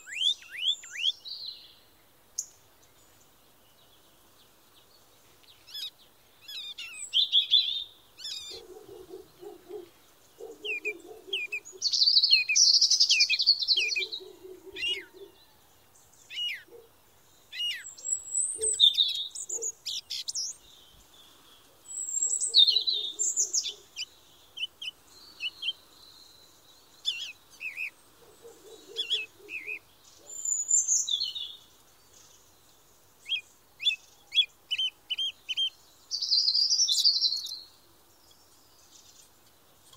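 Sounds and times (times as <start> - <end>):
songbirds chirping and singing: 0.0 - 39.9
low buzzy bird call: 5.7 - 15.6, 21.6 - 25.8, 27.0 - 31.1.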